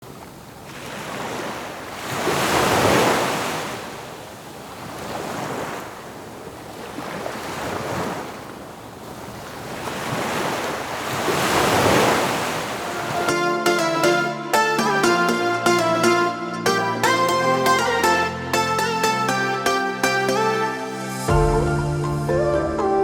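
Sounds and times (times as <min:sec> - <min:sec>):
waves breaking on sandy beach: 0:00.0 - 0:13.6.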